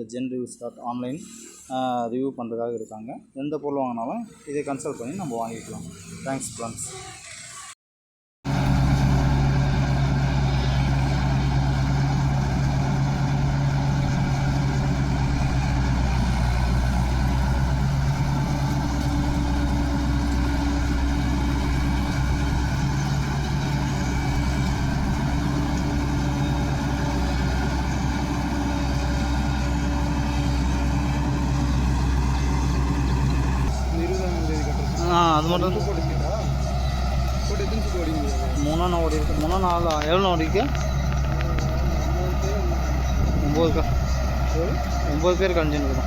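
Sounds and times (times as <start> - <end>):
combine harvester diesel drone: 8.5 - 46.0.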